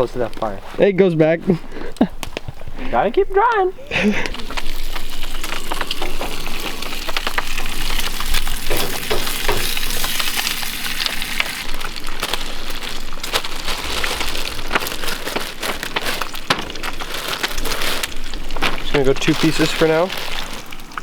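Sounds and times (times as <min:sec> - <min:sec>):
bacon sizzling in a frying pan: 0:04.2 - 0:21.0.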